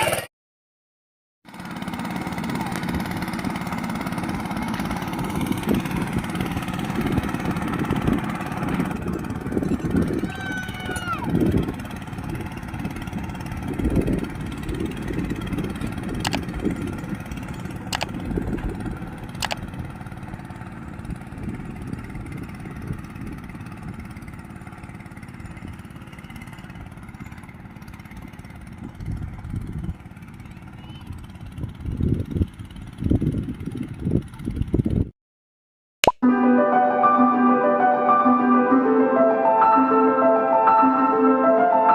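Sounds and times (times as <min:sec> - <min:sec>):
tractor engine rumbling: 0:01.5 - 0:34.9
sharp clicks: 0:16.2 - 0:16.5, 0:17.8 - 0:18.2, 0:19.3 - 0:19.6.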